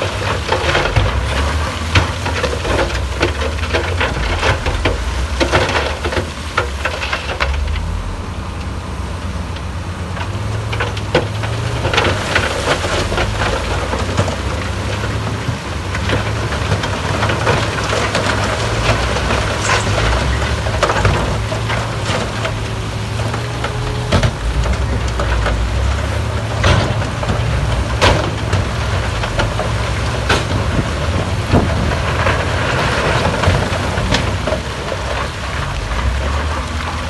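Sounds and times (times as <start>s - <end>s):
diesel machine running: 0.0s - 37.0s.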